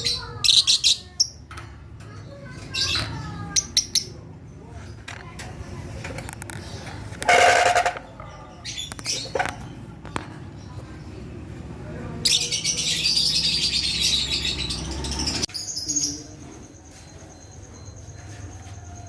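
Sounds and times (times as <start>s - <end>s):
high-pitched bird chattering: 0.0s - 1.5s, 2.2s - 4.4s, 6.2s - 11.2s, 12.2s - 16.4s
lovebirds chirping: 8.0s - 19.0s.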